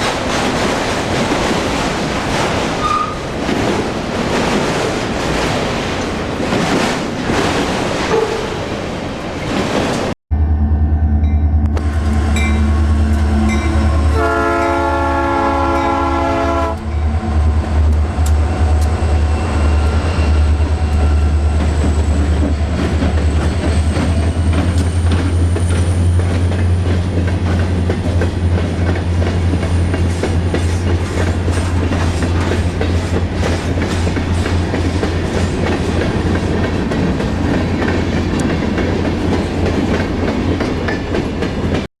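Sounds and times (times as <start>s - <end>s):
train rumbling past: 0.0s - 41.9s
locomotive horn: 11.6s - 17.3s
wheels clicking over rail joints: 20.7s - 41.9s.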